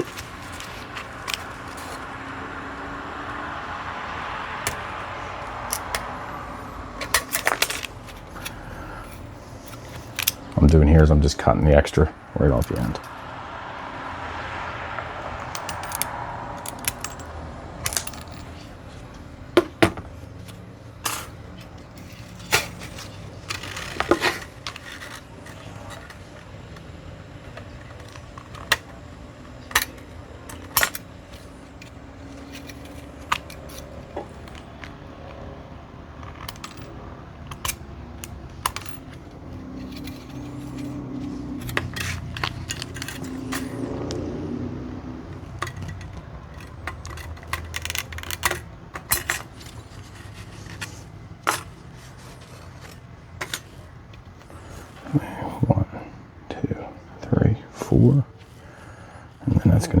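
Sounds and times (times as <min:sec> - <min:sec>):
shears snipping metal strip: 0:04.6 - 0:06.2, 0:37.5 - 0:44.5, 0:45.2 - 0:54.3
small metal pieces clinking: 0:07.0 - 0:10.7, 0:15.4 - 0:35.4, 0:36.2 - 0:44.4, 0:45.3 - 0:54.8.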